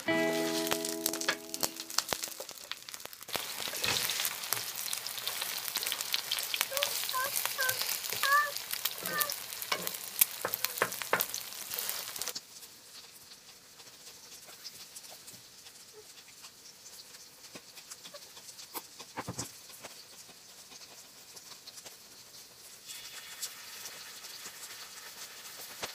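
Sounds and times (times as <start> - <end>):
food sizzling on griddle: 0.0 - 25.9
spatula scraping griddle: 0.1 - 2.5, 3.3 - 12.3.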